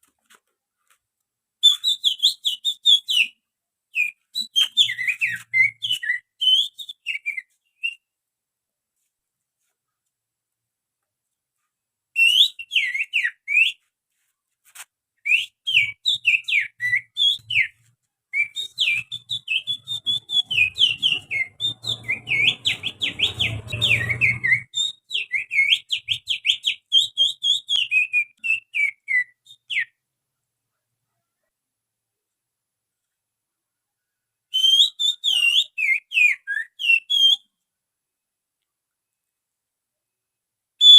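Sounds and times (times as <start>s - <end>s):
person whistling birdsong: 18.4s - 29.8s.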